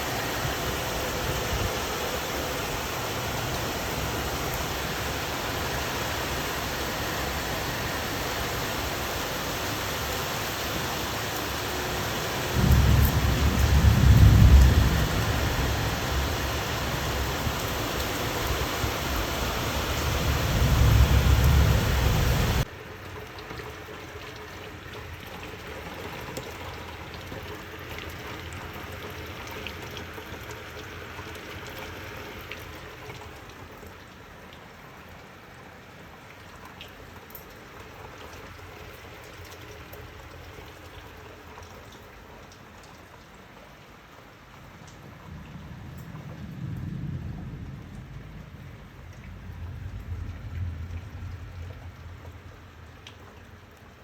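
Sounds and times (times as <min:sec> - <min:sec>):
heavy rain: 0:00.0 - 0:54.0
raindrops ticking: 0:08.1 - 0:34.7, 0:47.4 - 0:54.0
thunder rumbling: 0:11.0 - 0:22.7, 0:45.3 - 0:52.6.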